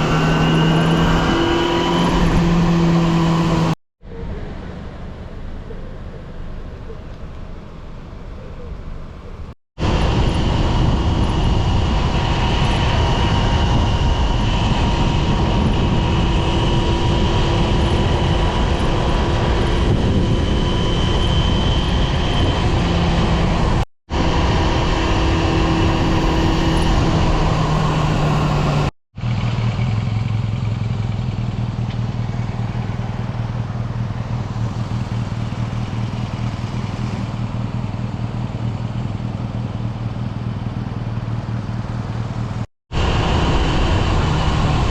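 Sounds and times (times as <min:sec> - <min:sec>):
steady rushing noise: 0:09.8 - 0:28.9, 0:42.4 - 0:44.9
motorcycle engine running: 0:09.8 - 0:44.9.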